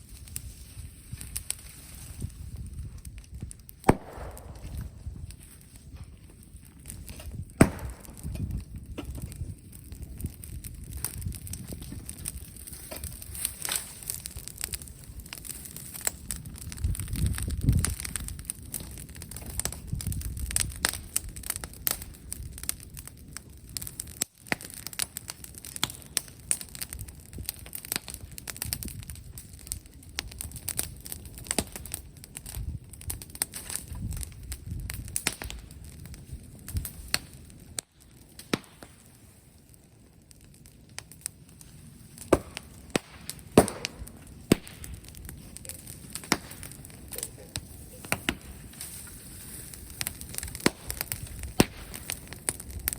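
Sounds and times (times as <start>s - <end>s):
bonfire crackling and popping: 0.0s - 52.9s
low rumble of burning: 0.0s - 52.9s.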